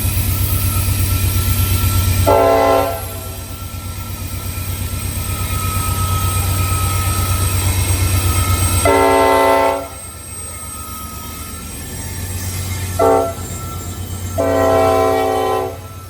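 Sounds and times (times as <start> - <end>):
diesel locomotive engine: 0.0 - 16.0
train air horn blast: 2.3 - 3.4, 8.8 - 10.0, 13.0 - 13.4, 14.4 - 15.9.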